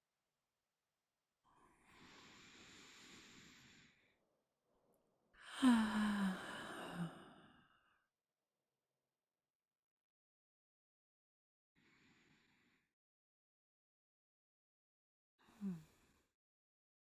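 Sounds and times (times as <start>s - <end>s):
woman breathing in: 1.5s - 4.2s, 5.4s - 7.8s
woman sighing into a low hum: 5.4s - 7.5s.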